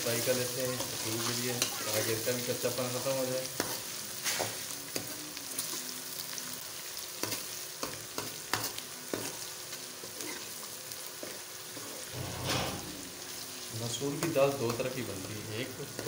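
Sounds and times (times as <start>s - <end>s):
onions sizzling in hot fat: 0.0s - 16.0s
steel ladle scraping a pan: 12.2s - 13.4s.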